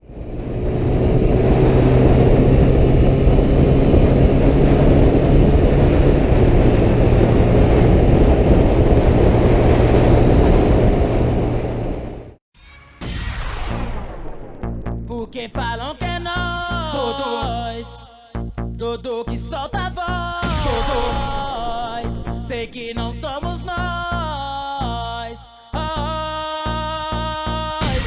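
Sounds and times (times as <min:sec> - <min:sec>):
vehicle engine running: 0:00.0 - 0:12.4, 0:19.9 - 0:24.2
loud rushing noise: 0:00.0 - 0:15.6, 0:20.4 - 0:23.3.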